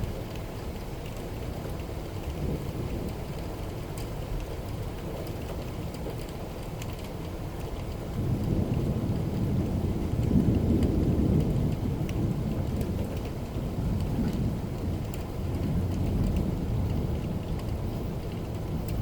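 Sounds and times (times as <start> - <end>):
raindrop ticks: 0.0 - 19.0
steady rain: 0.0 - 19.0
thunder rumbling: 8.1 - 19.0.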